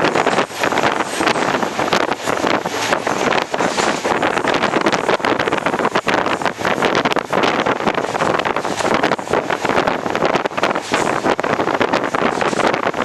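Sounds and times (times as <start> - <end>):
train coaches rattling: 0.0 - 13.0
wind over microphone: 0.0 - 13.0.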